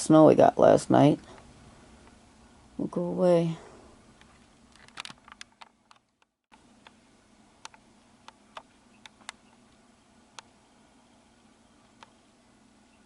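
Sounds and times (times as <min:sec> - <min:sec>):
steady low hum: 0:00.0 - 0:13.0
faint irregular clicks: 0:07.6 - 0:10.6, 0:11.8 - 0:12.2.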